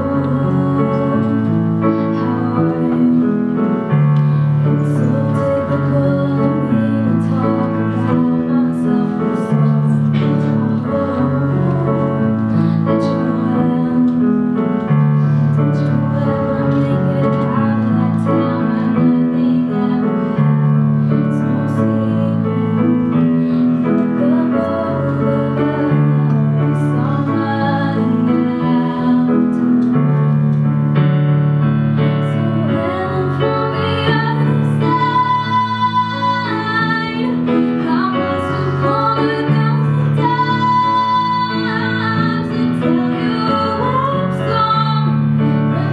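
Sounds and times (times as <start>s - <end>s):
woman singing: 0.0s - 3.9s, 4.7s - 14.6s, 15.7s - 20.5s, 21.3s - 30.0s, 32.2s - 45.9s
piano chords: 0.0s - 45.9s.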